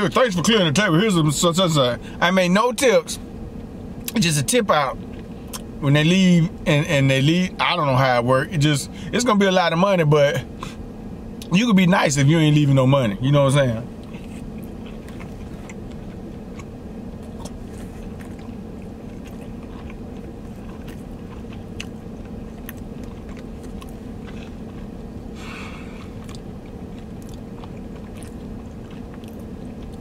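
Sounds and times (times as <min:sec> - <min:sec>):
steady low hum: 0:00.0 - 0:30.0
person chewing wetly: 0:05.0 - 0:05.7, 0:14.0 - 0:30.0.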